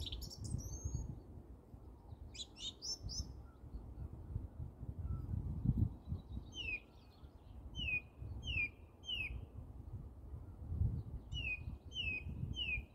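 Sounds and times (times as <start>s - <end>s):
wind rumble on microphone: 0.0s - 12.9s.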